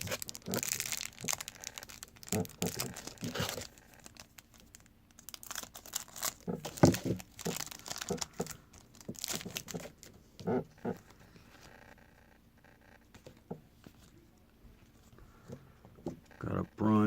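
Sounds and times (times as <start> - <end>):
trading cards crinkling and rustling: 0.0 - 12.0.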